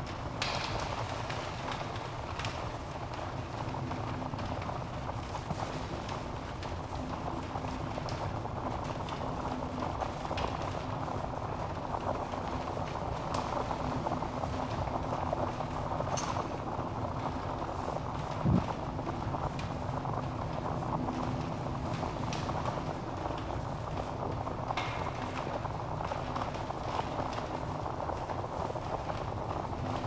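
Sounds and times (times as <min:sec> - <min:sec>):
logs crackling and popping: 0:00.0 - 0:30.0.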